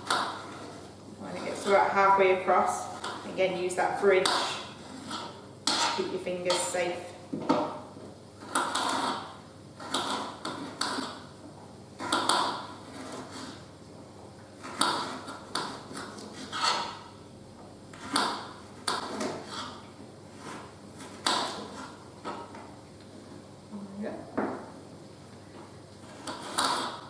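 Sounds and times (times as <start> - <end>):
knife slicing on chopping board: 14.6 - 17.0.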